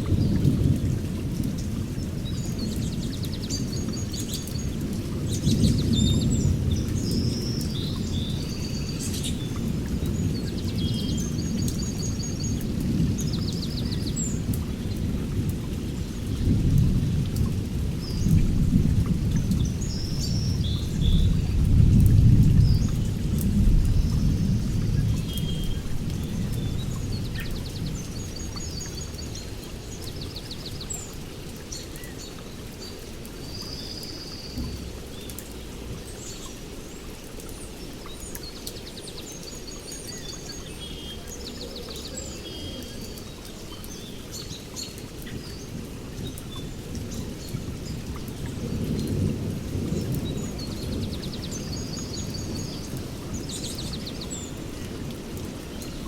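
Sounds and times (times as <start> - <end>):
songbirds chirping and trilling: 0.1 - 56.0.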